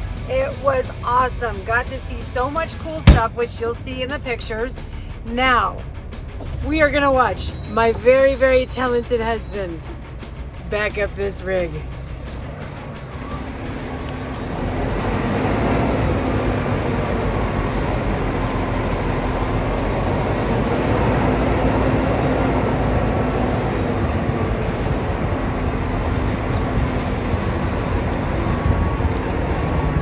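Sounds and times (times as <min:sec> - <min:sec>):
truck diesel engine running: 0:00.0 - 0:30.0.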